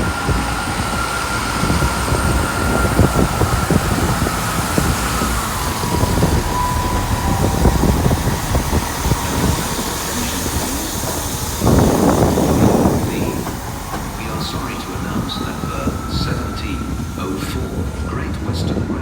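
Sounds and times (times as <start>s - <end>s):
train wheels clattering on rails: 0.0s - 19.0s
train whine dropping in pitch: 0.0s - 19.0s.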